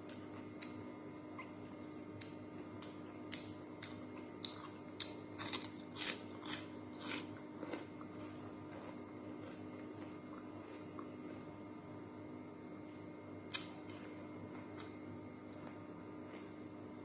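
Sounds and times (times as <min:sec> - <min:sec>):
crunchy bites and chewing: 0:02.1 - 0:11.8.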